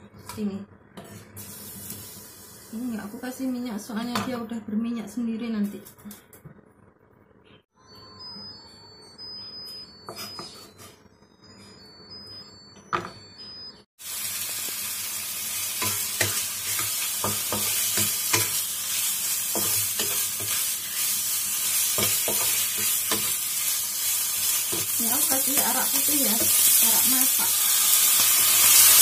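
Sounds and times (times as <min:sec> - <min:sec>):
meat frying in oil: 0:14.0 - 0:29.0.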